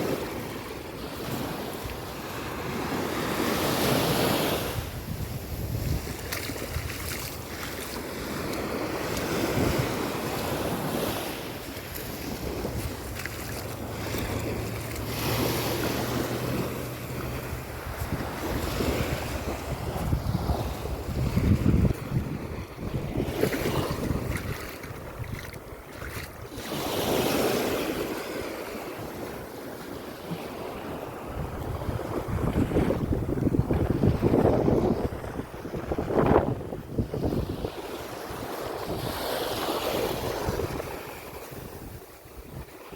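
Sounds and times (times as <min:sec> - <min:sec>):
sea waves washing onto beach: 0:00.0 - 0:42.9
wind buffeting microphone: 0:01.4 - 0:28.2, 0:30.7 - 0:42.9.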